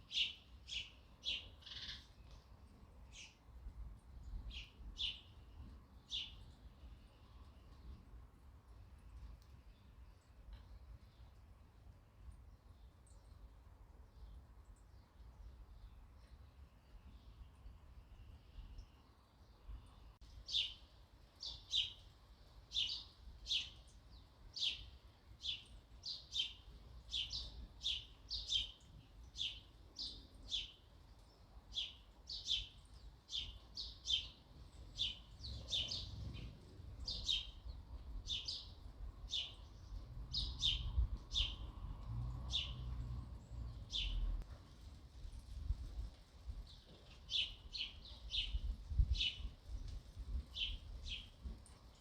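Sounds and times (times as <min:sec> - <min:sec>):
sparrow chirping: 0:00.0 - 0:02.1, 0:22.7 - 0:23.9, 0:24.6 - 0:30.9, 0:31.7 - 0:41.7, 0:42.5 - 0:43.0, 0:43.7 - 0:44.4, 0:47.3 - 0:49.5
faint low rumble: 0:34.6 - 0:47.4.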